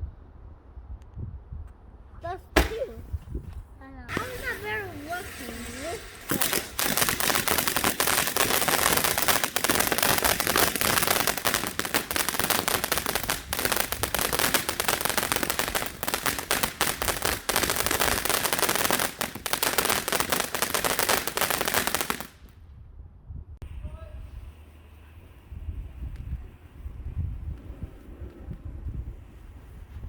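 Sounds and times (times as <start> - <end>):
firework crackling bangs: 2.6 - 3.2, 4.1 - 22.5.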